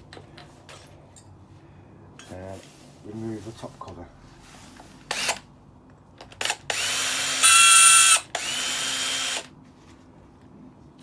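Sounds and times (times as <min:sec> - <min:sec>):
drill clicks: 0:06.3 - 0:09.5
drill motor whining: 0:06.7 - 0:09.5.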